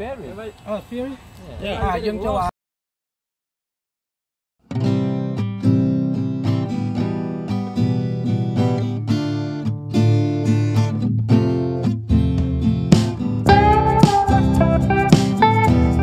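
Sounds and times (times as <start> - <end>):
acoustic guitar picking and strumming: 4.6 - 16.0.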